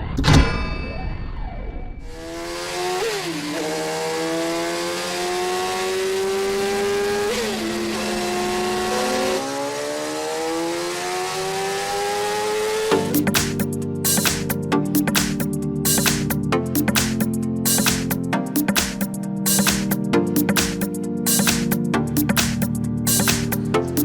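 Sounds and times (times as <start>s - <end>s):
motorcycle engine accelerating: 2.1s - 13.2s.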